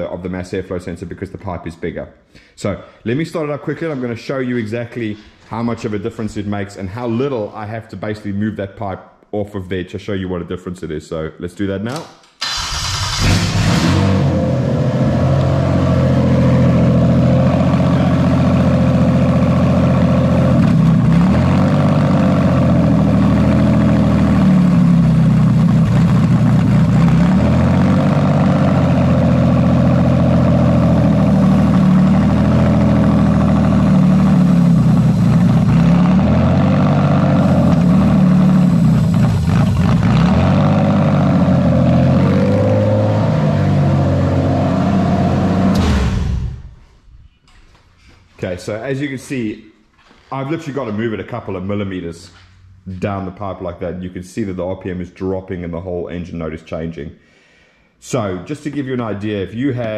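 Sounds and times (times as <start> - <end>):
car engine starting and idling: 12.4 - 46.9.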